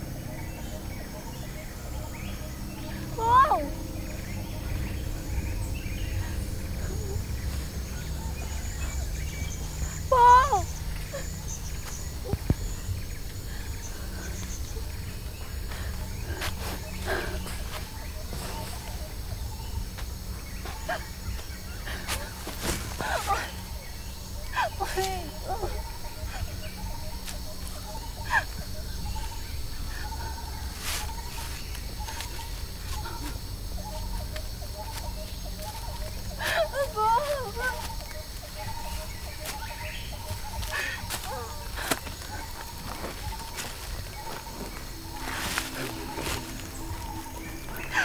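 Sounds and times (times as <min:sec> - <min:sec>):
high chirping of wild creatures: 0:00.0 - 0:48.0
steady low rumble: 0:00.0 - 0:48.0
rustling: 0:22.0 - 0:23.7.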